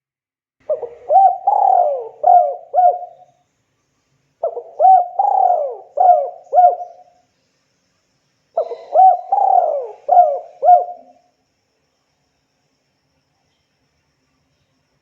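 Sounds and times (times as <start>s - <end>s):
dove cooing: 0.6s - 3.3s, 4.4s - 7.2s, 8.6s - 11.3s.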